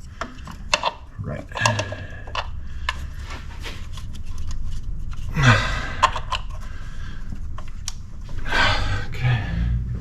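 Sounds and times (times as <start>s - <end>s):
clicks and taps of engine work: 0.0s - 5.2s
person exhaling with a grunt: 5.3s - 6.1s.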